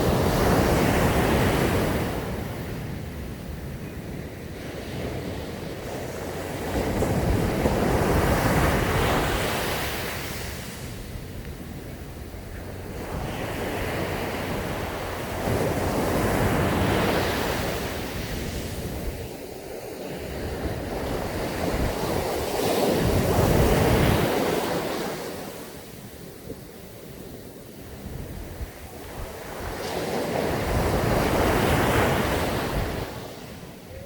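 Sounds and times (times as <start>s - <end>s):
ocean waves breaking on beach: 0.0s - 34.0s
wind on microphone: 0.0s - 34.0s.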